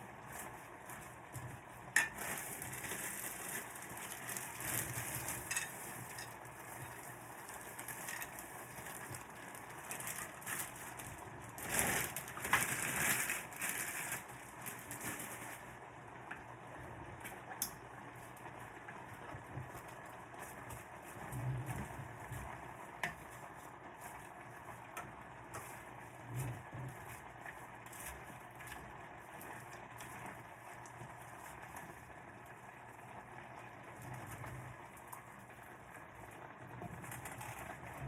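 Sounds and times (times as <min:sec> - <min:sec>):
vegetables sizzling in a pan: 0:00.0 - 0:15.3.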